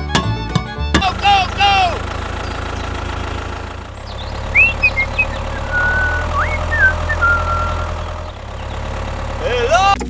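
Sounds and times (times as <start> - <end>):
small engine chugging: 0.7 - 10.0
high gliding whistle tones: 4.5 - 8.0.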